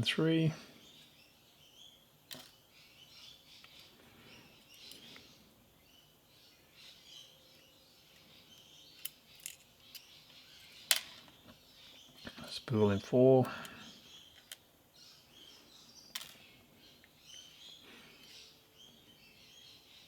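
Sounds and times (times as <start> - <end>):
faint bird chirps: 0.0 - 20.0
small metal clicks: 4.6 - 5.4, 8.1 - 12.6, 13.4 - 14.7, 16.1 - 18.4.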